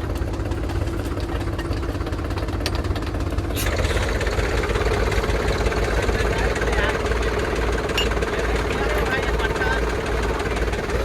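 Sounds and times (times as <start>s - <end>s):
diesel engine revving: 2.9s - 11.0s.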